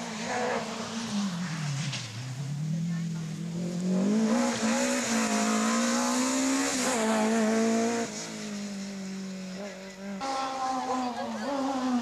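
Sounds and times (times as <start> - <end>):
rally car engine at high revs: 0.0 - 12.0.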